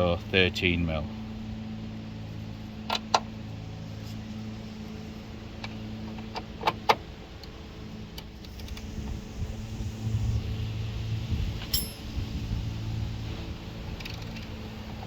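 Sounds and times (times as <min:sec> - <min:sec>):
steady low hum: 0:07.6 - 0:13.9
hand tools clinking on metal: 0:11.7 - 0:12.1.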